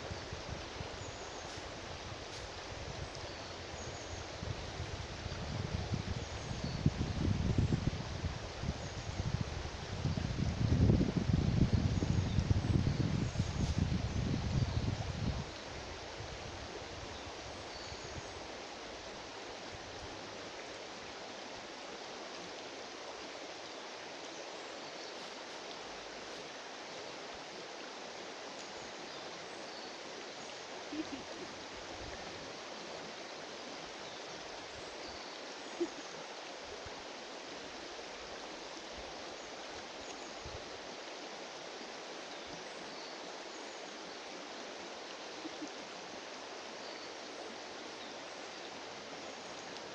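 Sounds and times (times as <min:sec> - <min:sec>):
river water flowing: 0:00.0 - 0:49.9.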